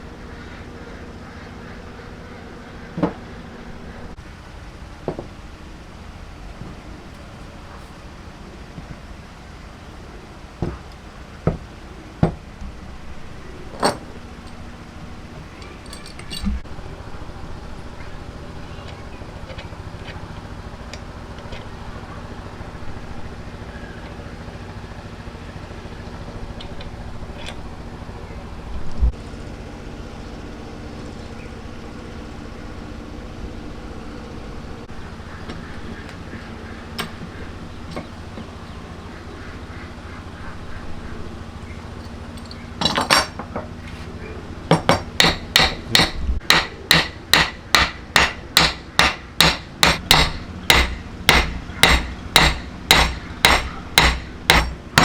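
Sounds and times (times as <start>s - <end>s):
low background hum: 0.0s - 55.0s
hammer blows on wood: 44.7s - 55.0s.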